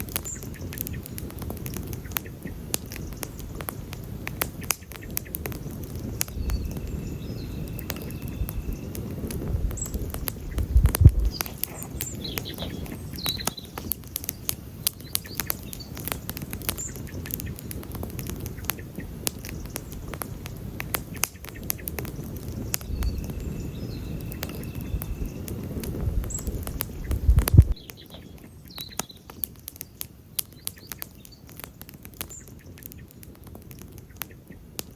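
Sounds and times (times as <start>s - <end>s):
campfire crackling and popping: 0.0s - 34.9s
low rumble of flames: 0.0s - 34.9s
faint high chirps: 6.1s - 13.8s, 22.1s - 29.2s.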